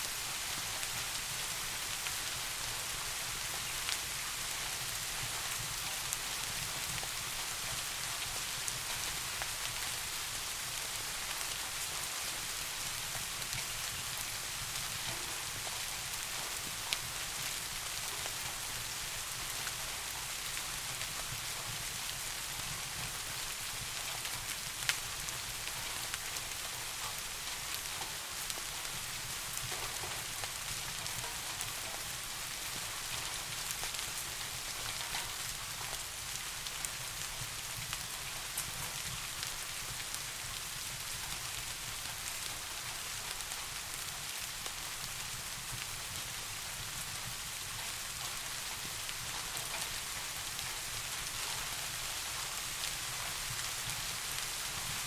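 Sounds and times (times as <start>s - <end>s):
steady rain falling: 0.0s - 55.0s
raindrop ticks: 15.0s - 18.7s, 25.7s - 36.4s, 47.1s - 55.0s.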